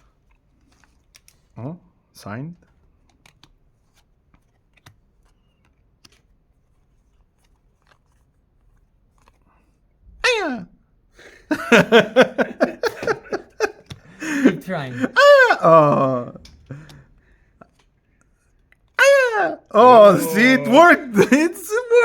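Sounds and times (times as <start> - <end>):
man short repeated vocal bursts: 14.2 - 16.4, 19.0 - 22.0
man vocal call falling in pitch: 19.0 - 22.0.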